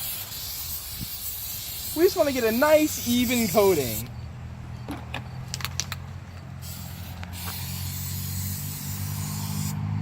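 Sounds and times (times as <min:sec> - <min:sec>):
aerosol spray can hissing: 0:00.0 - 0:04.1, 0:06.6 - 0:09.9.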